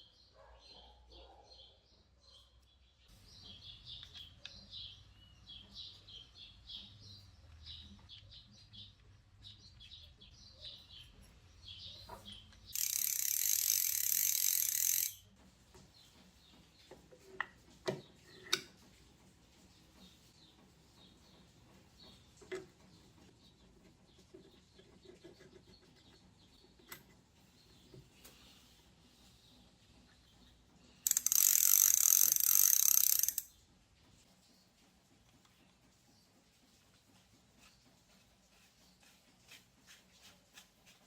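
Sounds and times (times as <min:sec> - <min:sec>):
small birds chirping: 0:00.0 - 0:15.1, 0:19.7 - 0:33.7
mechanical ratcheting buzz: 0:12.8 - 0:15.2, 0:31.0 - 0:33.5
sharp clicks: 0:12.8 - 0:15.2, 0:31.1 - 0:33.5.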